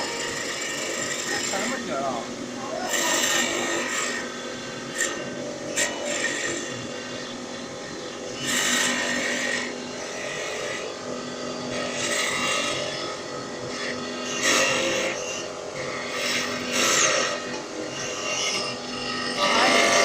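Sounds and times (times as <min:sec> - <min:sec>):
cutter hissing into wood: 0:00.0 - 0:07.4, 0:08.0 - 0:11.0
lathe motor hum: 0:00.0 - 0:20.0.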